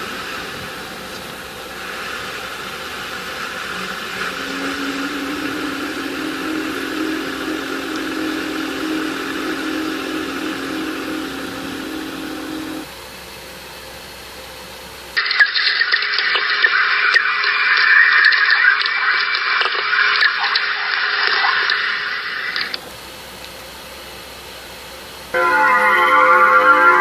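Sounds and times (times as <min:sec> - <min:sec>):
electronic hissing drone: 0:00.0 - 0:12.9, 0:25.3 - 0:27.0
low steady hum: 0:00.7 - 0:12.9.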